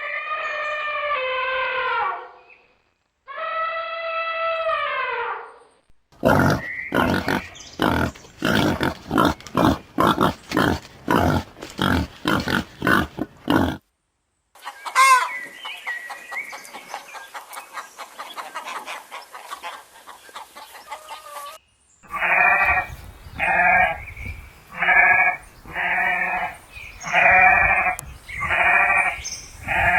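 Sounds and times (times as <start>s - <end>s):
farm animal bleating: 6.2s - 13.8s, 22.1s - 24.0s, 24.7s - 29.9s.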